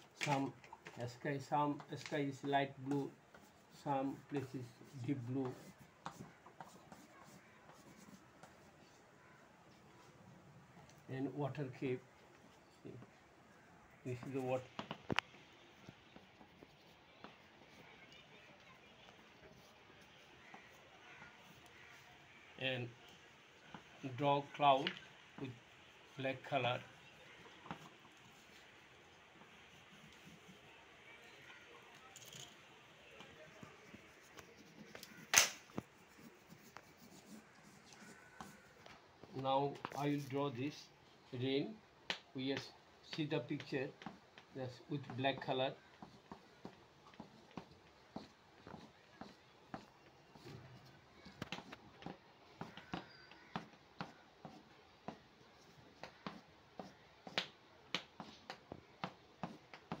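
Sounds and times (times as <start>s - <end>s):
painting ticks and rustles: 0.0s - 60.0s
drawing strokes on paper: 1.4s - 10.2s, 19.2s - 40.5s, 43.2s - 60.0s
sharp clack: 35.3s - 35.6s.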